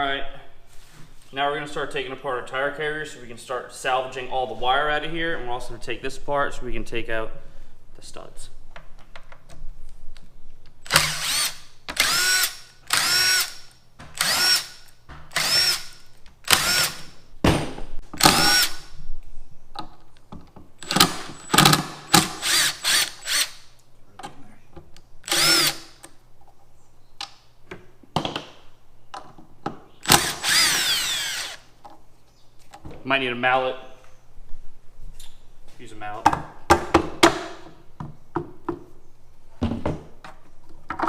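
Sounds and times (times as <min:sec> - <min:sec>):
cordless impact driver bursts: 0:10.9 - 0:17.2, 0:18.2 - 0:19.0, 0:20.8 - 0:23.7, 0:25.3 - 0:26.0, 0:30.0 - 0:31.7.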